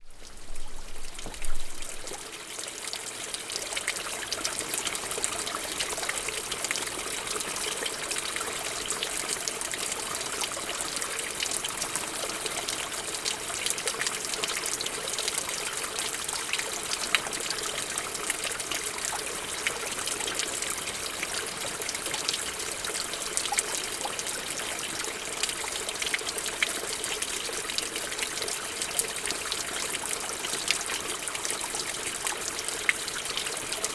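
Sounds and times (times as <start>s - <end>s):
stream splashing over stones: 0.0s - 3.0s.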